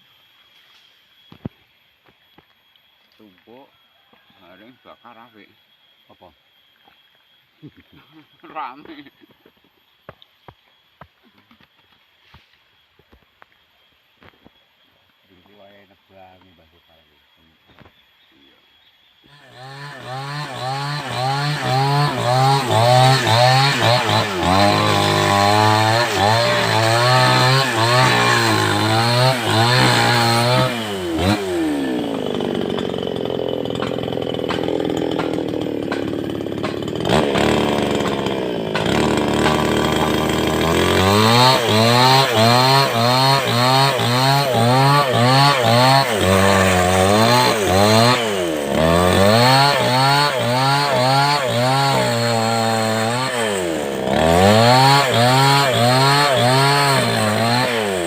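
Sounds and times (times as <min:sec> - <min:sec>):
chainsaw engine revving: 0:19.3 - 0:58.0.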